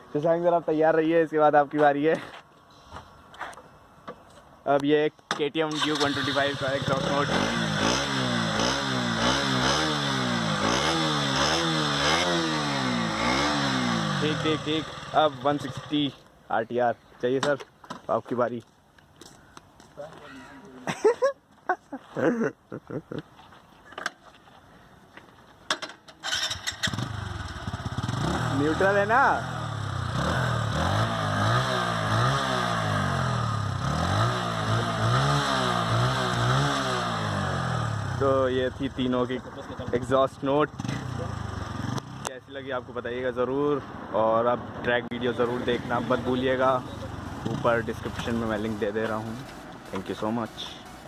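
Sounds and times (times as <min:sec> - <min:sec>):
motorcycle engine revving: 0:05.7 - 0:16.2, 0:26.2 - 0:42.4, 0:45.2 - 0:51.0.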